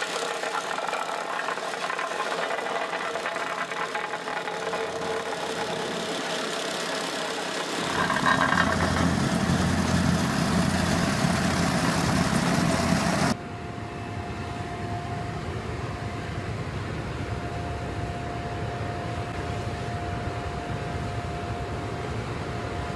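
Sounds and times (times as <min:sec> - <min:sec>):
construction machinery engine: 0:00.0 - 0:13.4
machine hum with steady whine: 0:00.0 - 0:22.9
deep engine rumble: 0:02.6 - 0:13.4.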